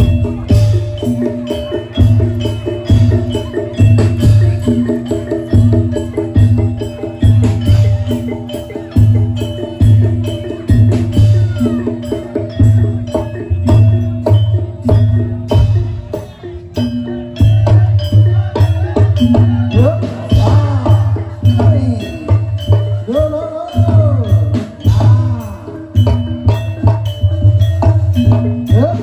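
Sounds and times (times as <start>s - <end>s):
quick percussion strikes: 0.0s - 29.0s
ringing pitched metal tones: 0.0s - 29.0s.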